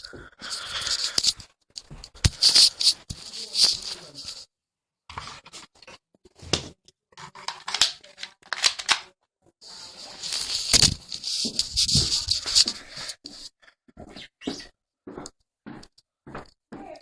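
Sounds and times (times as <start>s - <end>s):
rustling: 0.5s - 4.4s, 9.6s - 13.4s
short scrapes: 2.0s - 4.4s, 9.7s - 13.5s.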